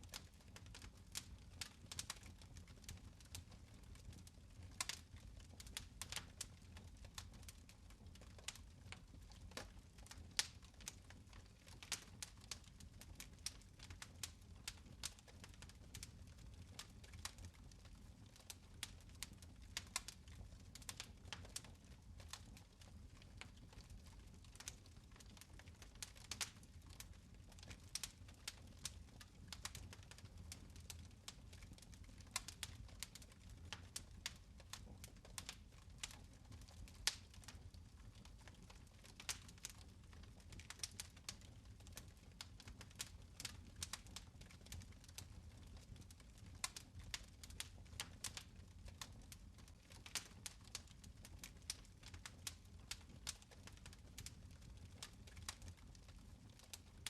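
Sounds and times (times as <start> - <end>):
low fire rumble: 0.0 - 56.8
fire crackling and popping: 0.0 - 57.0.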